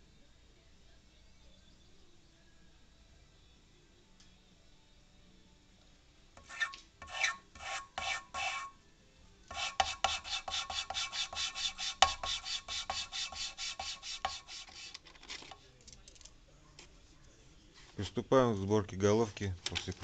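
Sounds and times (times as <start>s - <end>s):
gritty metal-on-metal rasping: 6.4s - 8.8s, 9.5s - 15.0s.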